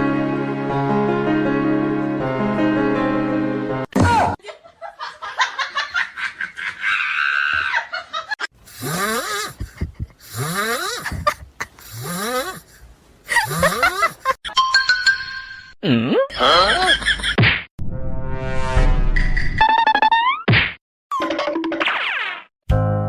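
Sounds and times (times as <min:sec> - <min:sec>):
breathy rising vocal calls: 0:08.7 - 0:14.4.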